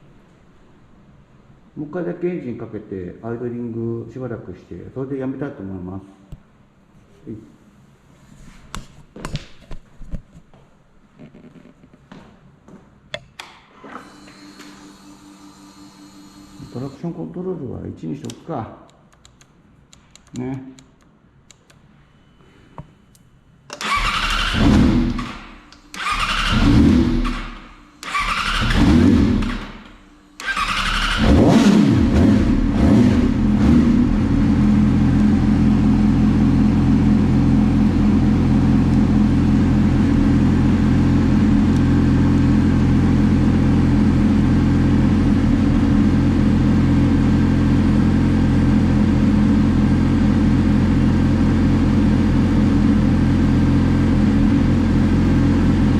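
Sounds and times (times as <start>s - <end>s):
man talking: 1.8s - 6.2s, 7.2s - 7.6s, 16.6s - 18.9s, 20.3s - 20.8s
motorcycle starter cranking: 23.7s - 29.7s, 30.4s - 31.4s
motorcycle engine revving and idling: 23.9s - 55.9s.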